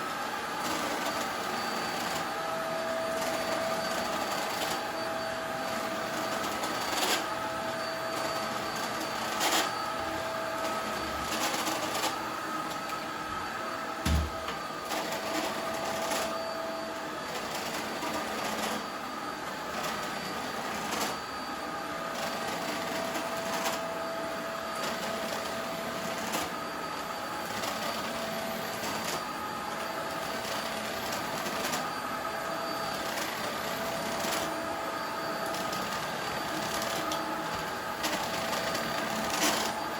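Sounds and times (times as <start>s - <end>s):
vacuum cleaner motor whine: 0.0s - 39.9s
heavy thump: 14.0s - 14.4s.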